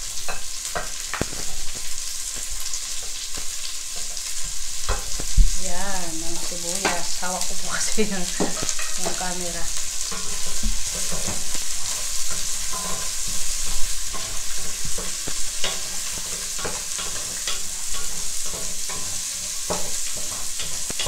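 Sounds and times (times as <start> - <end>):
onions and pork sizzling: 0.0 - 21.0
spatula scraping a pot: 8.1 - 21.0.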